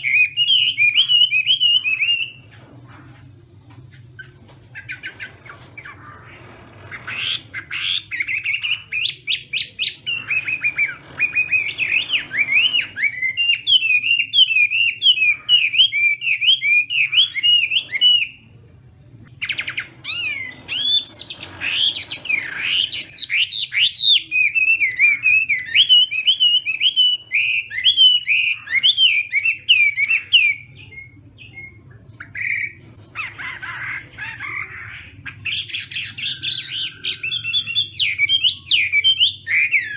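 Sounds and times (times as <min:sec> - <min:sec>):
bird singing whistled notes: 0:00.0 - 0:02.4.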